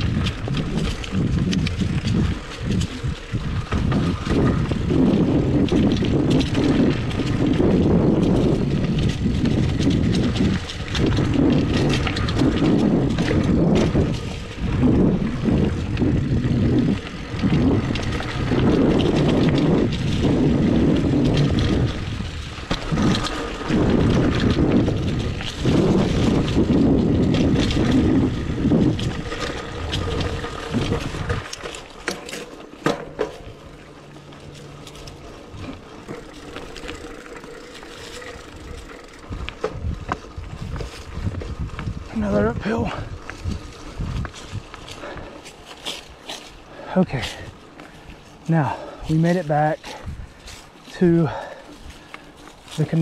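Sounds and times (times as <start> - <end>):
bike rattling and clicking: 0.0 - 53.0
bike tyres rumbling on dirt: 0.0 - 53.0
wind rushing over microphone: 0.0 - 53.0.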